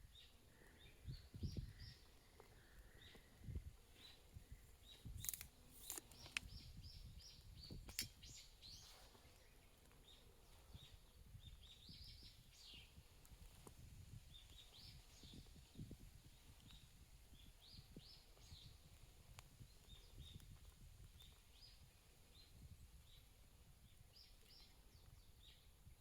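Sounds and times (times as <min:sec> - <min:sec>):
small birds chirping: 0:00.0 - 0:26.0
sharp clicks: 0:05.1 - 0:06.6.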